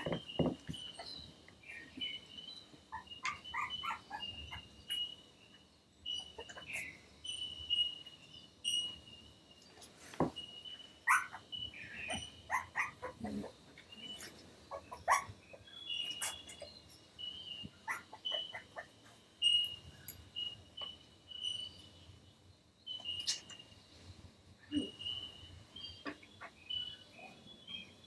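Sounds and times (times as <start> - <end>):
faint high chirp: 0.0 - 13.3, 13.9 - 28.0
puppies squeaking and whimpering: 2.9 - 5.1, 11.1 - 15.4, 16.0 - 16.7, 17.8 - 19.6.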